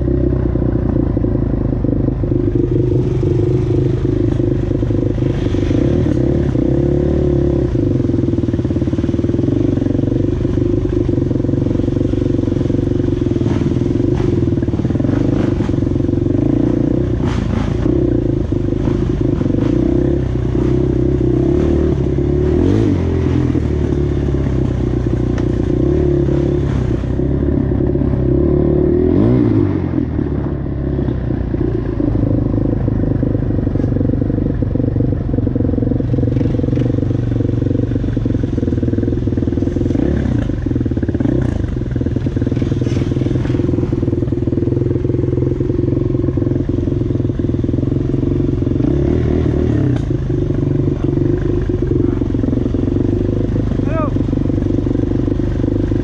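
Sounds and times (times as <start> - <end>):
clatter: 0.0 - 28.2, 30.0 - 56.0
atv engine running: 0.0 - 56.0.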